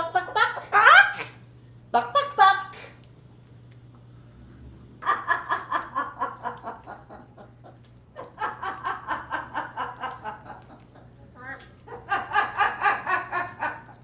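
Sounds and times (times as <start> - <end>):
parrot laughing: 0.0 - 1.4, 5.0 - 14.0.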